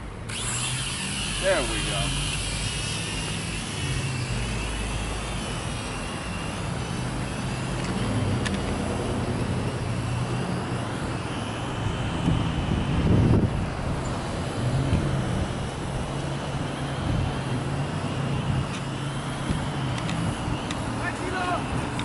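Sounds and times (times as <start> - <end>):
drone propellers whining: 0.0 - 22.0
wind buffeting microphone: 11.8 - 20.6.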